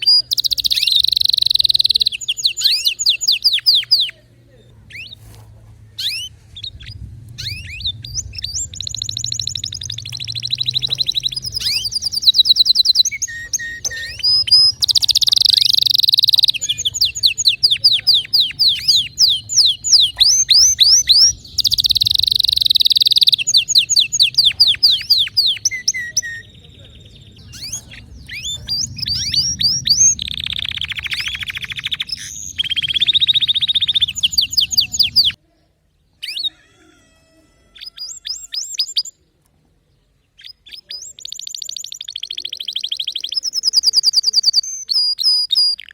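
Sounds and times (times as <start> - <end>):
canary singing trills: 0.0 - 35.4, 36.1 - 39.3, 39.9 - 45.9
low background hum: 0.0 - 36.2.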